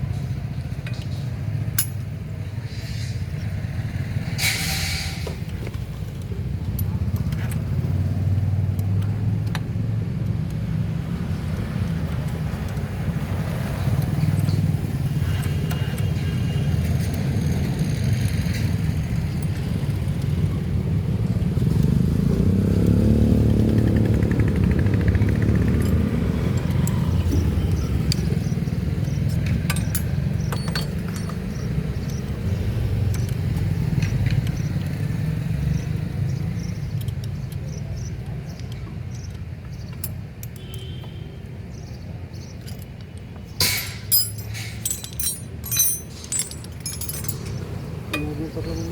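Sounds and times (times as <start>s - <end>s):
vehicle engine rumble: 0.0s - 48.9s
light metallic clicks: 36.6s - 41.2s.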